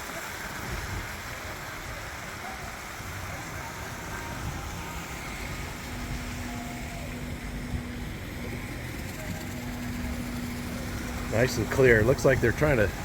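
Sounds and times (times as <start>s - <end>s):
small waterfall rushing: 0.0s - 13.0s
wind buffeting microphone: 0.4s - 13.0s
faint steady hum: 0.8s - 13.0s.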